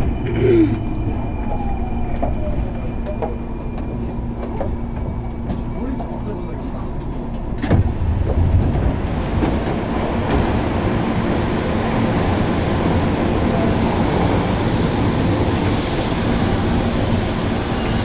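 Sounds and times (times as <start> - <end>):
train rumble and hum: 0.0 - 18.0.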